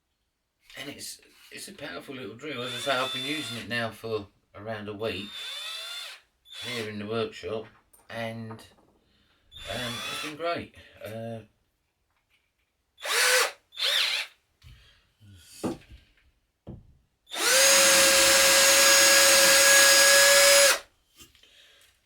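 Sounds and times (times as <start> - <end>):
cordless drill motor running: 2.5 - 3.7, 5.2 - 6.9, 9.6 - 10.4, 13.0 - 14.4, 17.3 - 20.8.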